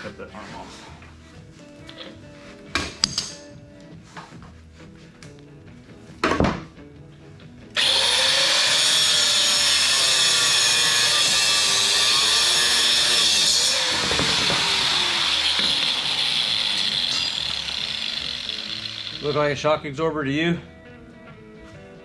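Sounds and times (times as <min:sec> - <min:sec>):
power saw cutting metal: 0:07.8 - 0:20.0.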